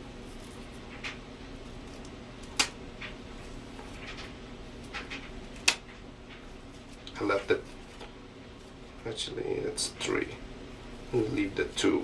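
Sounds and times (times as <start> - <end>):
low room hum: 0.0 - 12.0
scissors snipping feathers: 1.9 - 2.8, 5.6 - 5.9.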